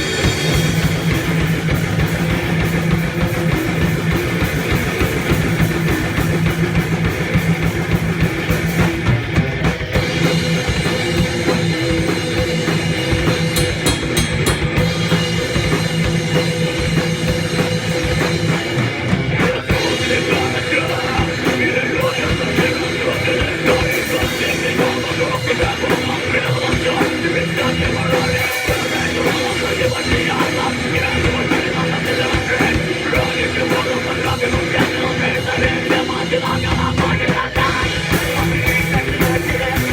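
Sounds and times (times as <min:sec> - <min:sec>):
distorted electric guitars: 0:00.0 - 0:39.9
driving drum kit: 0:00.0 - 0:39.9.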